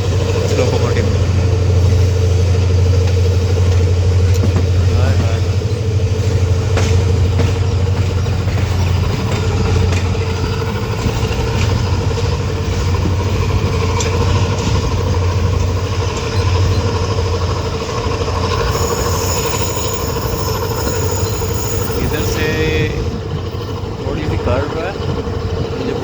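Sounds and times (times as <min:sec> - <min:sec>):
train wheels on rails: 0:00.0 - 0:26.0
steady high squeal: 0:10.2 - 0:24.9.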